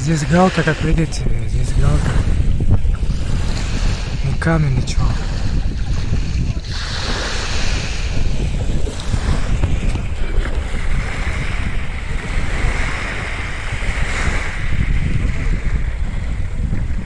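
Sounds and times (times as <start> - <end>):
wind buffeting microphone: 0.0 - 17.0
waves washing over pebble beach: 5.0 - 16.3.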